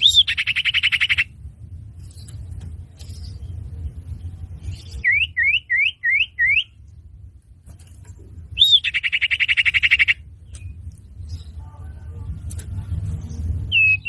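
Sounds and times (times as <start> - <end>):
bird whistling and trilling: 0.0 - 1.3, 4.6 - 6.8, 8.5 - 10.8, 13.7 - 14.0
low rumble: 1.2 - 5.4, 9.7 - 14.0.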